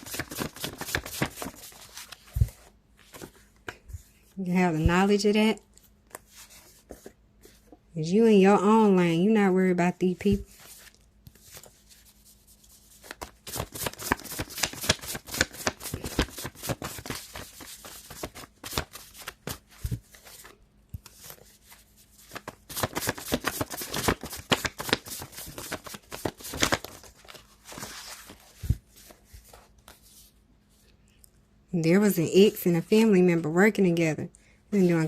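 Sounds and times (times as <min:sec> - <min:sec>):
cards shuffled by hand: 0:00.0 - 0:03.8, 0:10.4 - 0:30.2.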